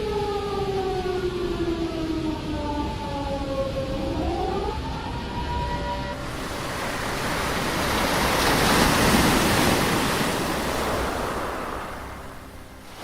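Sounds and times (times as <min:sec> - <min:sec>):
crashing surf: 0:06.2 - 0:13.0
roaring wind: 0:06.2 - 0:13.0.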